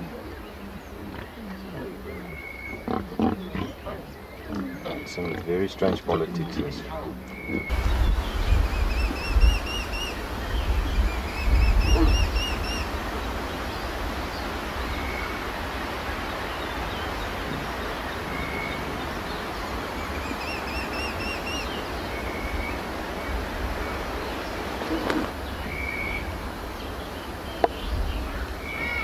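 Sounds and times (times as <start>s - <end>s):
background hiss: 0.0s - 29.0s
birds chirping: 0.0s - 29.0s.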